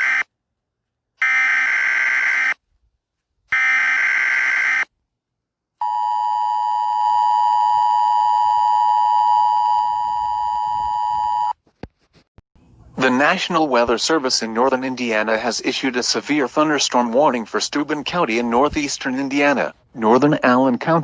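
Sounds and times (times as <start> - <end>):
steady warning alarm tone: 0.0 - 0.2, 1.2 - 2.6, 3.5 - 4.9, 5.8 - 11.5.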